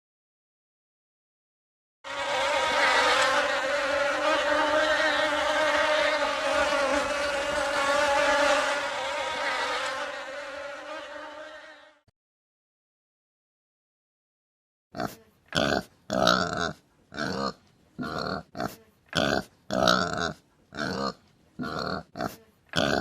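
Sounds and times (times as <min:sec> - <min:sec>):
flying insect buzzing: 0:02.1 - 0:12.1.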